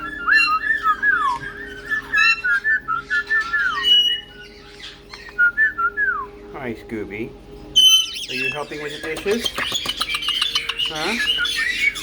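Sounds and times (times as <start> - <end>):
parrots whistling: 0.0 - 6.4, 7.7 - 12.0
sharp parrot chirps: 7.8 - 12.0.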